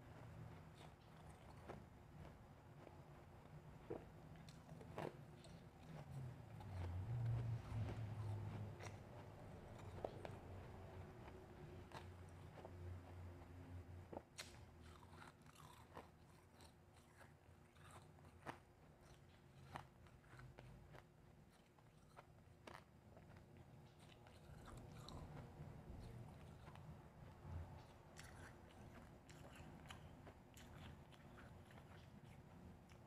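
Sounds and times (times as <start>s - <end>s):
mouth crunching and chewing ice: 14.4s - 27.0s, 27.7s - 33.0s.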